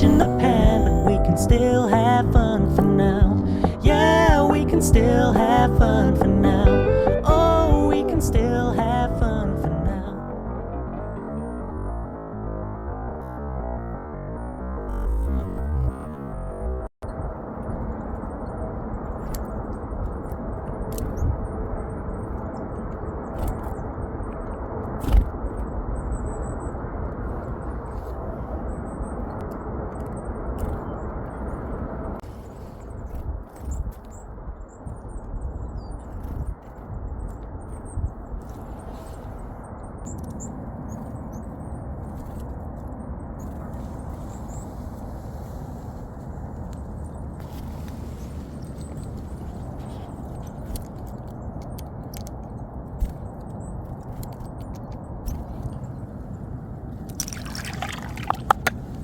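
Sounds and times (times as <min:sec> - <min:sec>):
wind on microphone: 0:00.0 - 0:12.0, 0:17.0 - 0:59.0
steady low rumble: 0:00.0 - 0:32.3
small birds chirping: 0:43.2 - 0:56.4.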